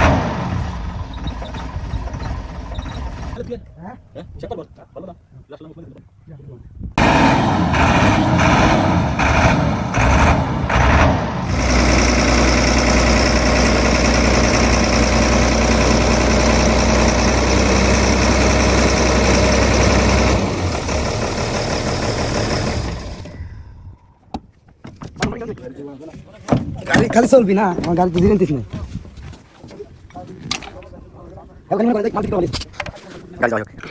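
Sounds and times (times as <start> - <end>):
heavy vehicle engine running: 0.0 - 3.4, 7.0 - 23.4.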